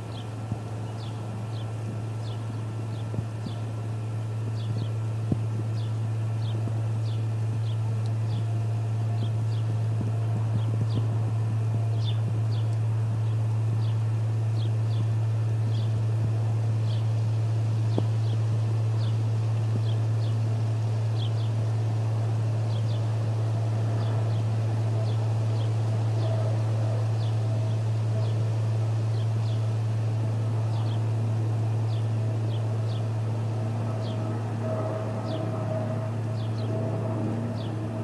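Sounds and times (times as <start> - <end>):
loud steady low hum: 0.0 - 38.0.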